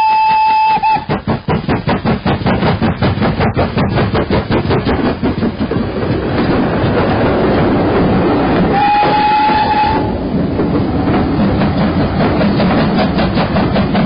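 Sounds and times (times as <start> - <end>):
train horn blast: 0.0 - 1.1, 8.7 - 10.2
train running: 0.0 - 14.0.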